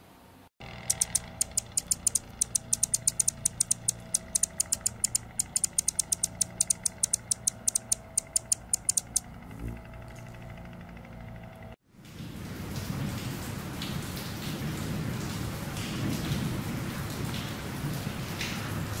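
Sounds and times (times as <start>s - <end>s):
low steady rumble: 0.6s - 11.8s
small bird high chip notes: 0.7s - 9.3s.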